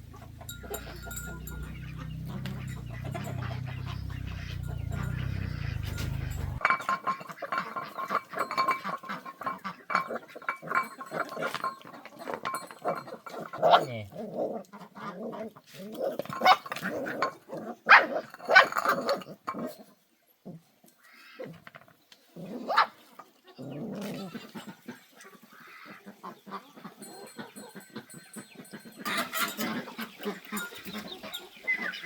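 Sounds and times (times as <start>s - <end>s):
low steady hum: 0.0s - 6.6s
dog yipping and barking: 0.1s - 6.6s, 17.9s - 18.8s, 22.6s - 23.0s.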